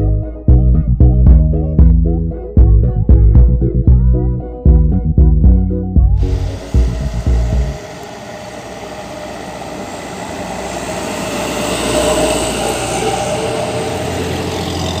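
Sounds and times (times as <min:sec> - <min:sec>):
truck engine running: 0:06.1 - 0:15.0.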